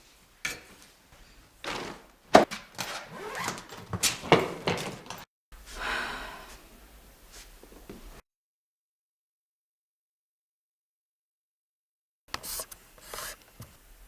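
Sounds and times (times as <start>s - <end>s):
knocks and thumps: 1.6s - 5.2s.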